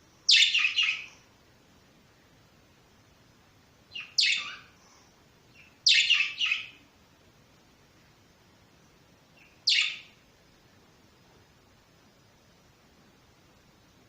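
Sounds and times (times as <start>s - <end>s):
budgerigars chirping: 0.3s - 1.1s, 3.9s - 4.8s, 5.5s - 6.8s, 9.4s - 10.2s.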